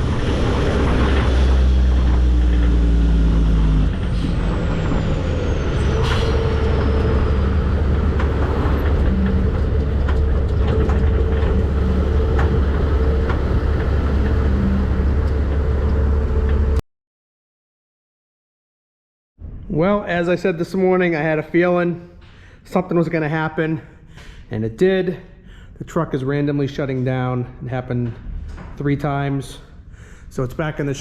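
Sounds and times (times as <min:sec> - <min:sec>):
diesel truck engine droning: 0:00.0 - 0:16.8
road noise: 0:00.0 - 0:16.8.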